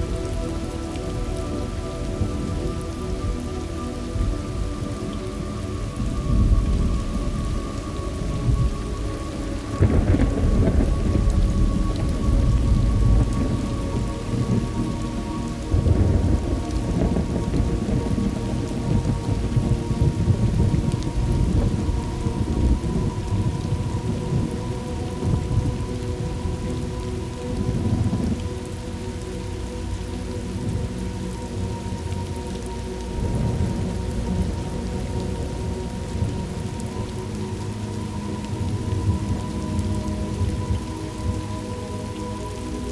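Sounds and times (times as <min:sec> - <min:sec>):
heavy rain: 0:00.0 - 0:42.9
deep rolling thunder: 0:09.8 - 0:14.8, 0:15.7 - 0:24.6.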